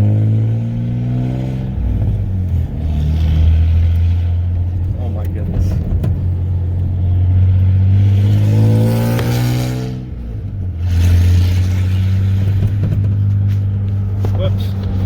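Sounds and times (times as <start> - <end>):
straight-piped truck exhaust accelerating: 0.0 - 15.0.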